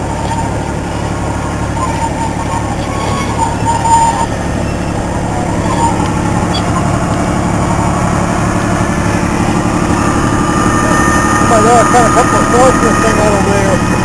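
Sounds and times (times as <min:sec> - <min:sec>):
miniature train engine running: 0:00.0 - 0:14.0.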